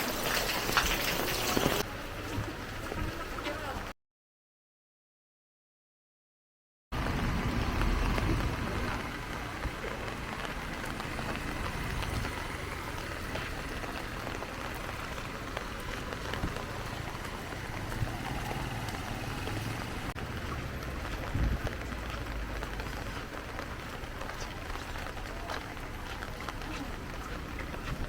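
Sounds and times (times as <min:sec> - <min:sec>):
raindrops tapping on surfaces: 0:00.0 - 0:03.9, 0:07.0 - 0:28.0
heavy rain falling: 0:00.0 - 0:04.0, 0:07.0 - 0:28.0.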